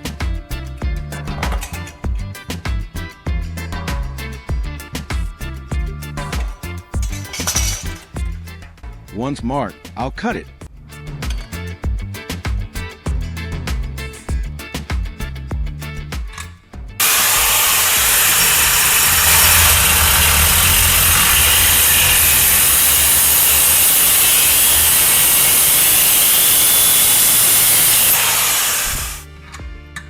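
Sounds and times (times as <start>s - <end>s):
angle grinder cutting metal rod: 6.2s - 8.2s, 17.0s - 29.3s.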